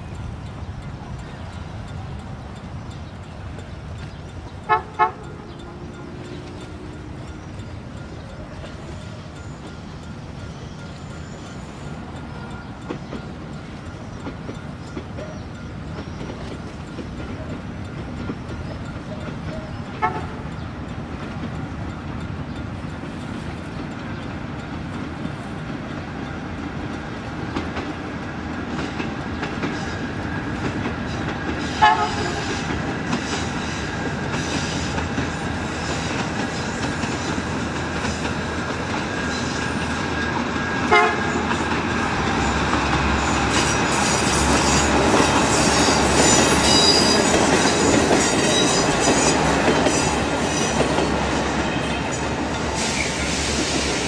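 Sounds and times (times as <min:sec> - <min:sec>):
train wheels clattering over rail joints: 0:00.4 - 0:54.0
train horn toots: 0:04.7 - 0:07.4, 0:19.9 - 0:20.6, 0:31.7 - 0:32.7, 0:40.8 - 0:41.6.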